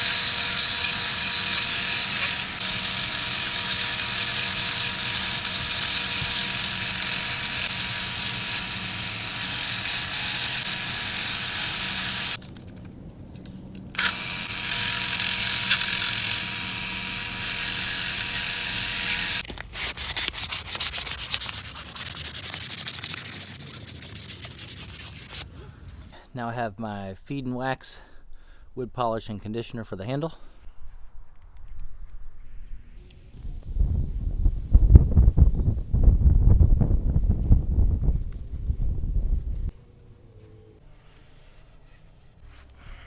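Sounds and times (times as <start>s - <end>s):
power sander sanding: 0.0s - 12.4s, 14.0s - 19.4s.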